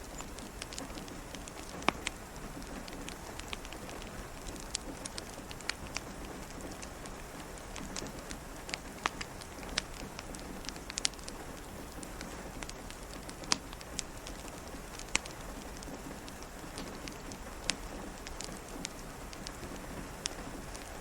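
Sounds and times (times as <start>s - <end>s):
steady rain: 0.0s - 21.0s
wood fire crackling and popping: 0.0s - 21.0s.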